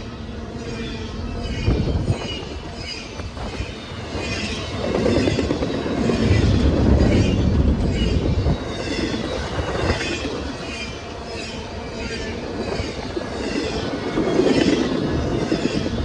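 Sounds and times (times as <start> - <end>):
train wheels rattling on rails: 0.0 - 16.0.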